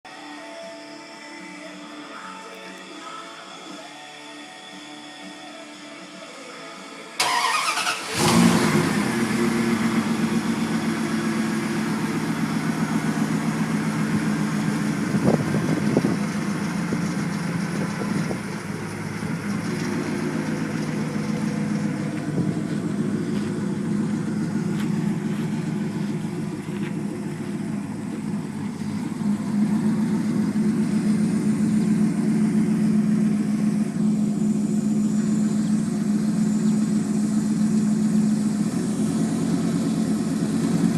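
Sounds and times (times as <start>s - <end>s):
starter motor cranking: 7.2s - 8.6s
engine idling: 7.2s - 40.9s.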